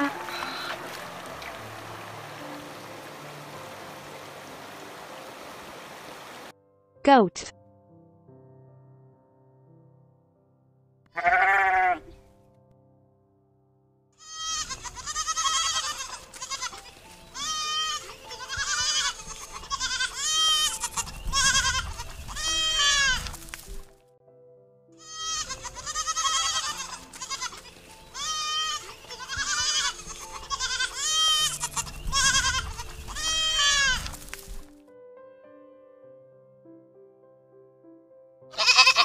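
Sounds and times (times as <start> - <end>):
goats bleating: 0.0 - 1.0, 11.2 - 12.1, 14.2 - 16.8, 17.4 - 23.3, 25.0 - 27.6, 28.2 - 34.2, 38.6 - 39.0.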